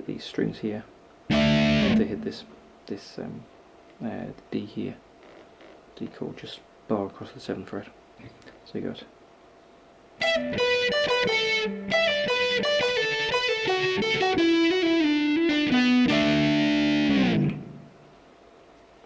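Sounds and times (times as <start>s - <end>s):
electric guitar playing: 1.3s - 2.6s, 10.2s - 18.0s.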